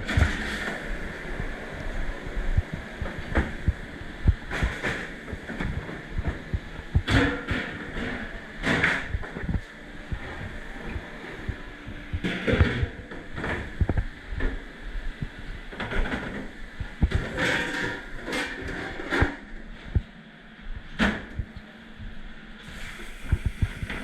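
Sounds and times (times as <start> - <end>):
short hissing bursts: 22.6 - 24.0.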